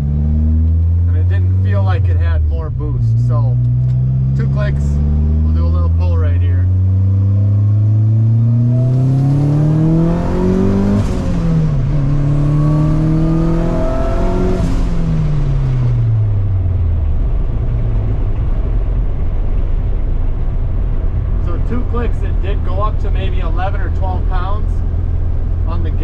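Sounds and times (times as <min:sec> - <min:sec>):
turbocharged car engine revving: 0:00.0 - 0:16.9.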